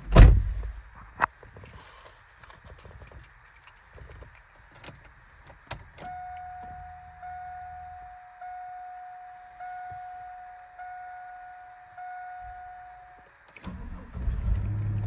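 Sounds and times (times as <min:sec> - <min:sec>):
dashboard warning chime: 0:06.0 - 0:13.4
low hum: 0:06.0 - 0:15.0.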